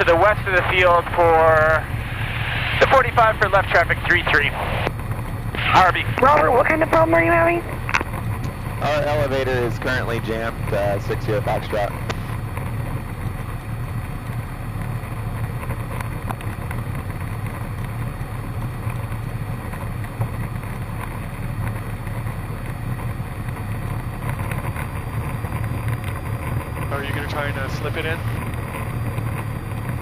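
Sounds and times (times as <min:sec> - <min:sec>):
faint high whine: 0:00.0 - 0:12.4
aircraft engine and propeller droning: 0:00.0 - 0:30.0.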